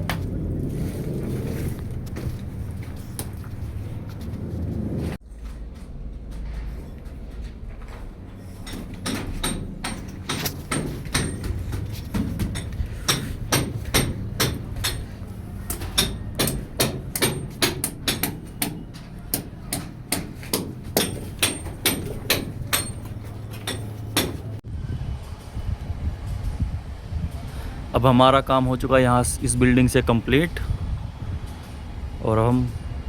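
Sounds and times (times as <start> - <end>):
steady low hum: 0.0 - 33.0
hammer blows: 7.8 - 24.6.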